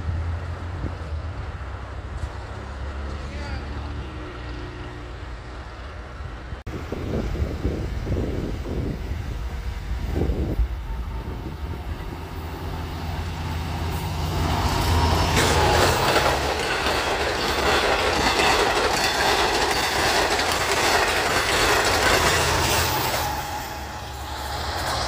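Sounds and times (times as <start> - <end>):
train passing: 0.0 - 25.0
wheels clattering over rails: 13.4 - 25.0.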